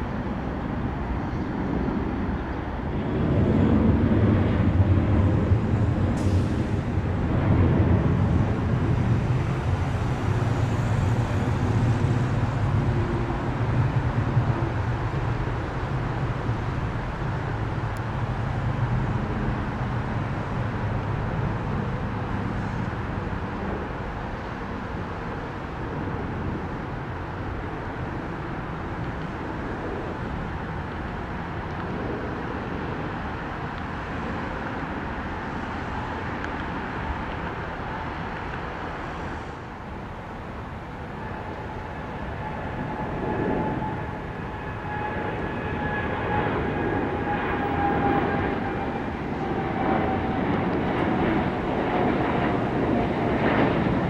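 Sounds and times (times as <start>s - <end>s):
jet engine roar: 0.0s - 54.0s.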